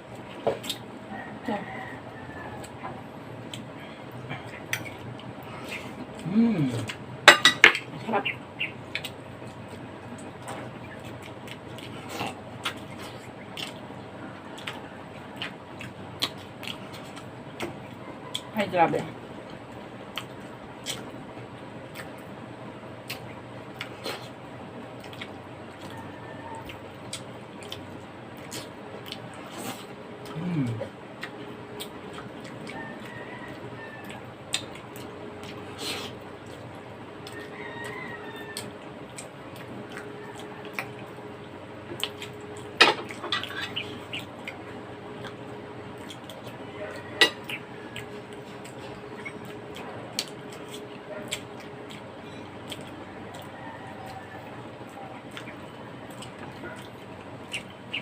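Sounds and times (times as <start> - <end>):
wet chewing and mouth noises: 0.0 - 1.2, 1.8 - 7.1, 8.6 - 18.5, 19.3 - 58.0
steady background hum: 0.0 - 58.0
cutlery clinking on plates: 7.3 - 7.8.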